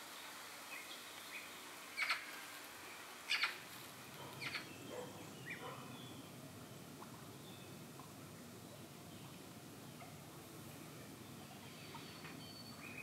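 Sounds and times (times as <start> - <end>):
background hiss: 0.0 - 13.0
bird chirps: 4.3 - 6.4, 11.5 - 13.0.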